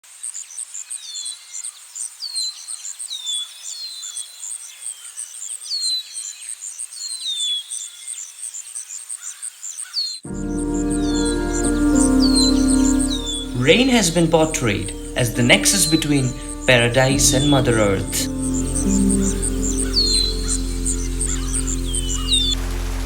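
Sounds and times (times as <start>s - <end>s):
music: 10.3s - 23.0s.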